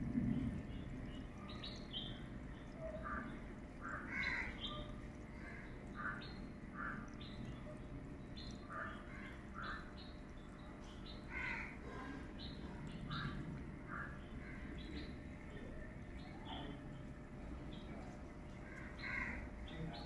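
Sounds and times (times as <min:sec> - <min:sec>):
steady low rumble: 0:00.0 - 0:03.8, 0:11.8 - 0:19.7
birds chirping and calling: 0:00.2 - 0:20.0.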